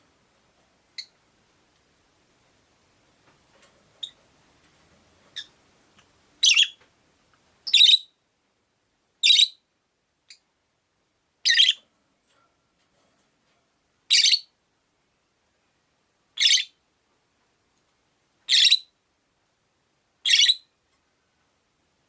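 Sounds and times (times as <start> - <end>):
parrot shrill harsh chirping: 6.4 - 6.8, 7.7 - 8.1, 9.2 - 9.6, 11.4 - 11.8, 14.1 - 14.5, 16.4 - 16.8, 18.5 - 18.9, 20.2 - 20.7.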